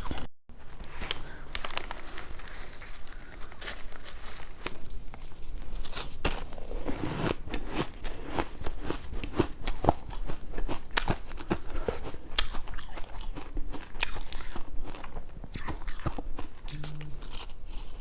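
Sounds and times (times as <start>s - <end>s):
person crunching ice: 5.7s - 18.0s.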